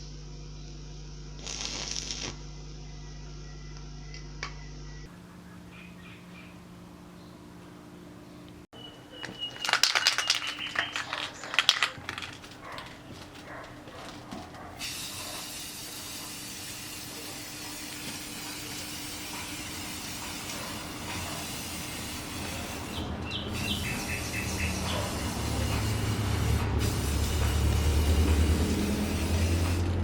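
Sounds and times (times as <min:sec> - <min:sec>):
spraying hiss: 0:01.4 - 0:02.4, 0:14.8 - 0:30.0.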